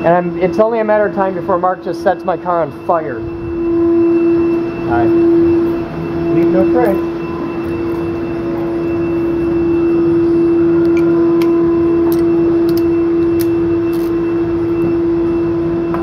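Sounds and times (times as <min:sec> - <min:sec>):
concrete-cutting machine drone: 0:04.0 - 0:16.0.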